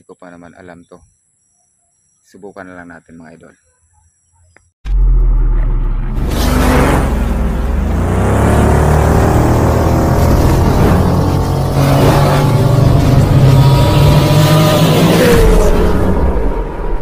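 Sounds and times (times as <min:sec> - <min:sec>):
racing engine revving: 0:04.9 - 0:17.0.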